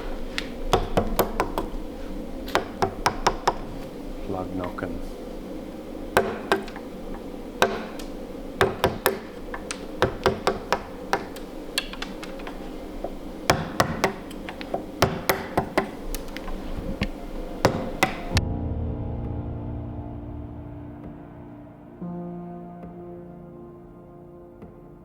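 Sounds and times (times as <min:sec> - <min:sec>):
sharp wooden taps and knocks: 0:00.4 - 0:01.8, 0:02.5 - 0:03.9, 0:06.2 - 0:18.3.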